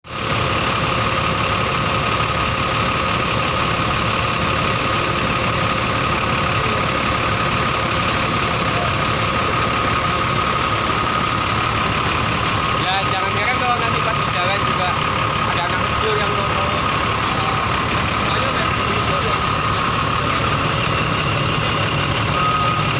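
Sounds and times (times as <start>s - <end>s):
diesel engine idling: 0.0s - 22.9s
constant high tone: 0.2s - 22.9s.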